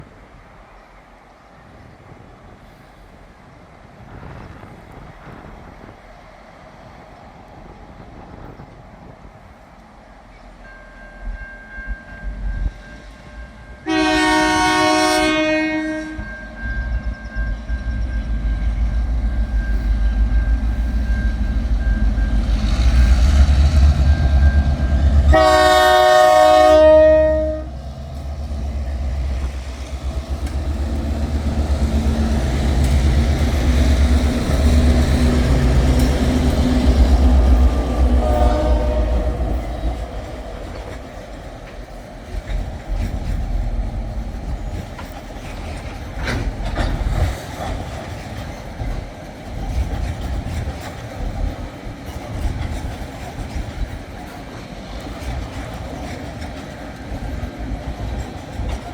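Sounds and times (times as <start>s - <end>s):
diesel locomotive engines rumbling: 0.0s - 58.9s
train horn blast: 13.8s - 17.0s, 22.6s - 27.8s, 34.8s - 40.2s
wagons rumbling and clacking: 39.2s - 58.9s.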